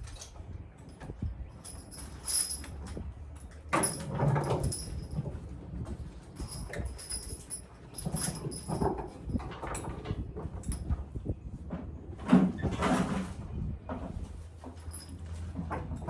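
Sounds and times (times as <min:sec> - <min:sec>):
harness jangling and squeaking: 0:00.0 - 0:11.0, 0:14.6 - 0:16.0.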